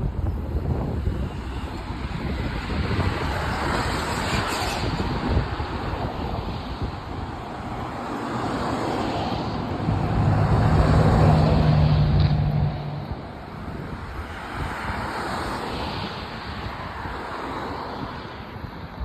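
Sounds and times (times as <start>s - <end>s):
outdoor rushing noise: 0.0s - 19.0s
engine hum: 7.1s - 14.0s.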